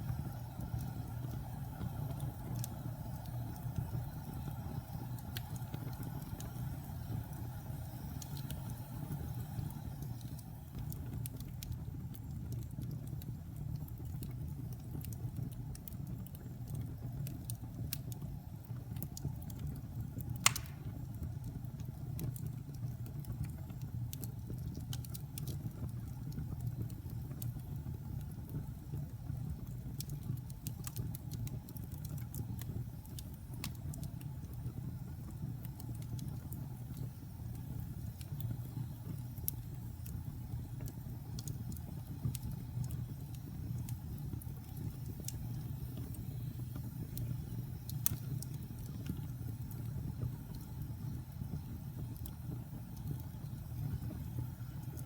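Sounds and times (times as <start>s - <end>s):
fire crackles: 0.0s - 55.0s
fire low rumble: 0.0s - 55.0s
loud wood pop: 20.4s - 20.9s.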